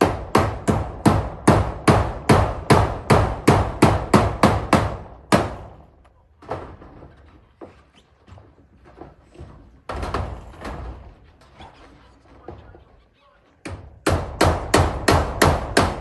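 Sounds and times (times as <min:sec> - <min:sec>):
hammer driving nails: 0:00.0 - 0:07.4, 0:09.5 - 0:11.1, 0:13.6 - 0:16.0.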